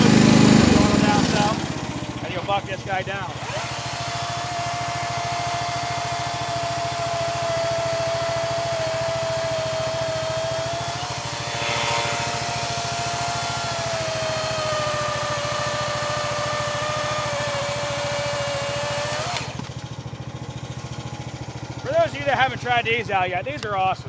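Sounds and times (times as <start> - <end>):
chainsaw cutting log: 0.0 - 19.9
excavator engine running: 0.0 - 23.1.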